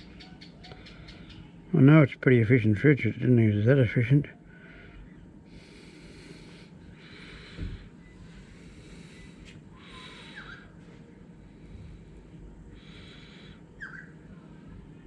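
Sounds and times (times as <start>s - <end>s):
steady low hum: 0.0s - 15.0s
person breathing close to microphone: 4.4s - 14.3s.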